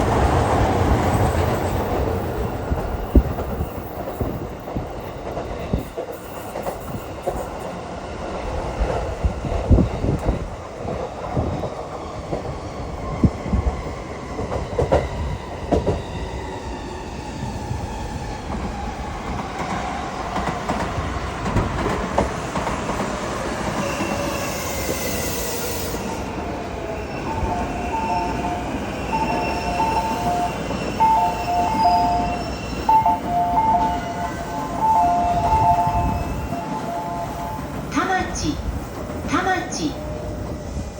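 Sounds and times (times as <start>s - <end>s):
train rumbling on rails: 0.0s - 40.9s
two-tone electronic signal: 32.9s - 37.5s.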